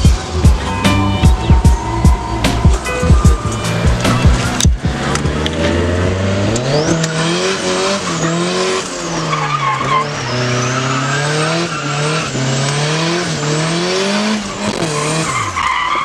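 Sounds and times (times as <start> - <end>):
car engine revving high: 0.0 - 15.7
tyres sliding on wet tarmac: 8.0 - 13.6.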